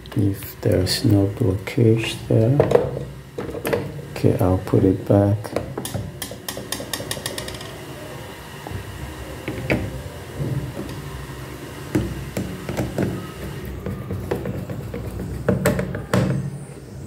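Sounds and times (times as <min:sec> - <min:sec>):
washing machine parts knocking: 0:05.5 - 0:07.8, 0:13.8 - 0:16.4.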